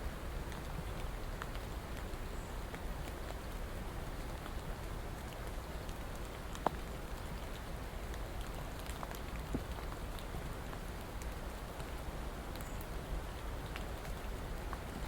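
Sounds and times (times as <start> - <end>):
steady rain hiss: 0.0 - 15.0
raindrops ticking: 0.1 - 15.0.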